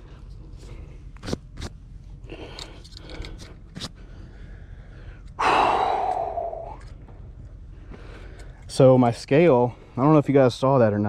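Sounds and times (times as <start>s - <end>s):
person breathing out heavily: 2.3s - 6.8s.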